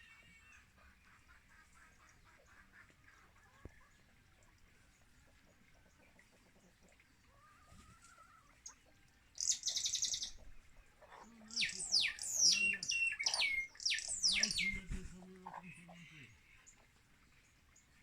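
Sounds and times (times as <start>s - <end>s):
faint low bird calls: 0.0s - 17.9s
fast high bird trill: 11.6s - 15.0s.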